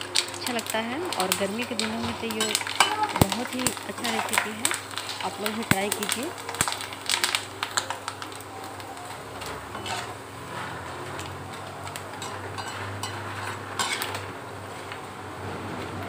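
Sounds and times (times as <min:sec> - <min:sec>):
chips sizzling in hot oil: 0:00.0 - 0:16.0
metal spoon scraping a pan: 0:00.2 - 0:07.9, 0:09.0 - 0:15.0.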